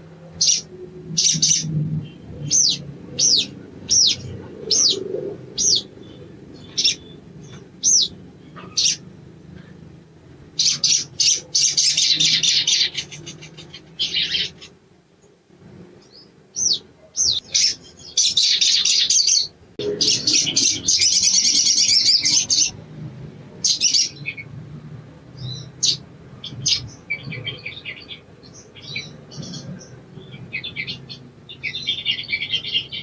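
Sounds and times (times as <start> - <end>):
bird chattering trills: 0.4 - 1.8, 2.4 - 9.1, 10.6 - 14.8, 16.6 - 22.8.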